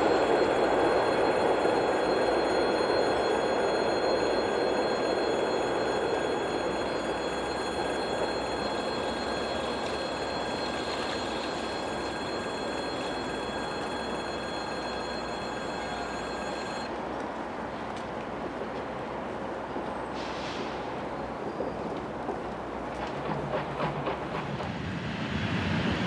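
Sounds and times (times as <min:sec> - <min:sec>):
steady high-pitched tones: 0:00.0 - 0:16.9
electric train rolling rumble: 0:00.0 - 0:26.0.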